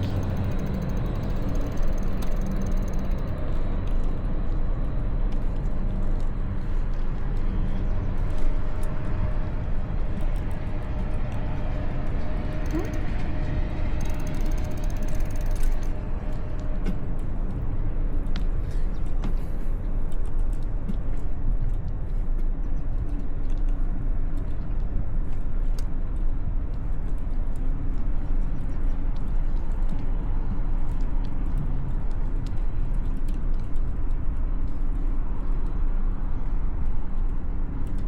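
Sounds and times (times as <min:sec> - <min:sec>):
motor traffic: 0:00.0 - 0:19.7
wind and road noise: 0:00.0 - 0:38.0.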